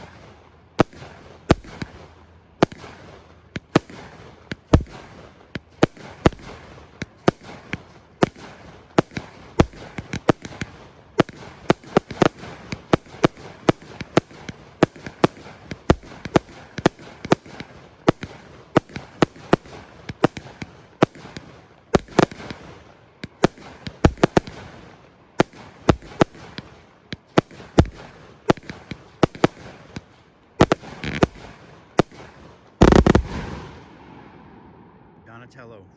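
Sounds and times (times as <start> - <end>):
firework crackling: 0.0 - 34.6
firework bangs: 0.0 - 35.2.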